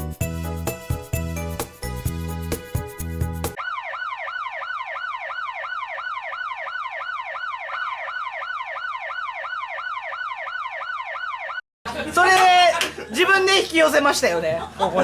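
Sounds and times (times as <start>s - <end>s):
electronic siren wailing: 3.6s - 11.6s.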